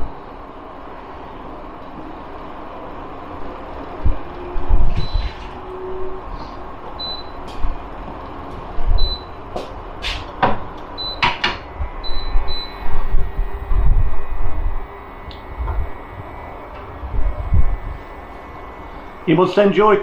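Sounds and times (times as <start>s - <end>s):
wind buffeting microphone: 11.6s - 18.1s.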